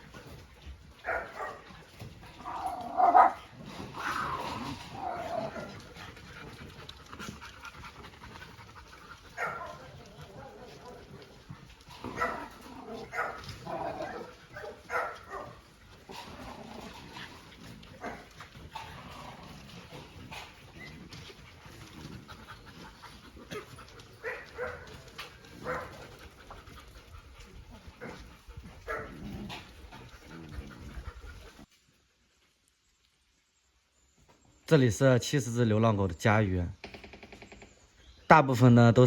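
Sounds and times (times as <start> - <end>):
dogs barking: 0.9 - 7.3, 8.7 - 19.3, 19.9 - 26.6, 27.8 - 31.1.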